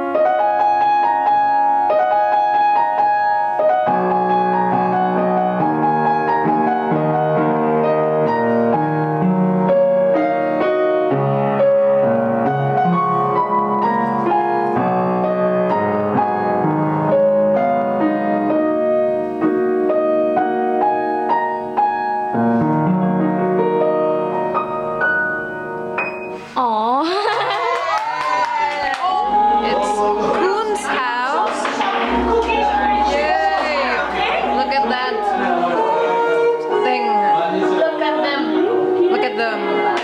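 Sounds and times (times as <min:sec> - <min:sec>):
piano melody over chords: 0:00.0 - 0:26.5, 0:28.8 - 0:40.0.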